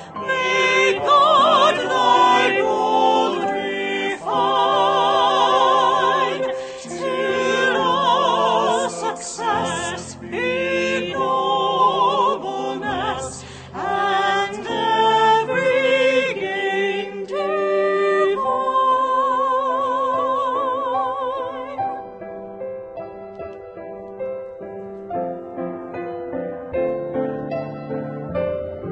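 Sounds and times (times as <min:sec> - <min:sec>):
operatic singing: 0:00.0 - 0:22.0.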